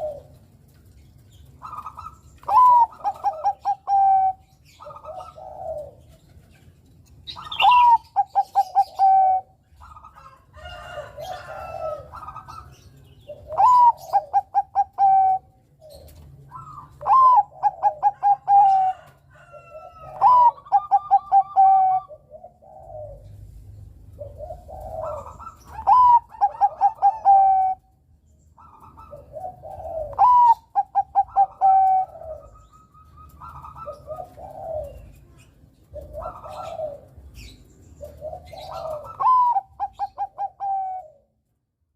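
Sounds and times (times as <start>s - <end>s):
soft low dove coos: 0.0s - 0.5s, 1.7s - 6.4s, 13.3s - 27.9s, 28.7s - 41.4s
dove cooing song: 0.0s - 41.6s.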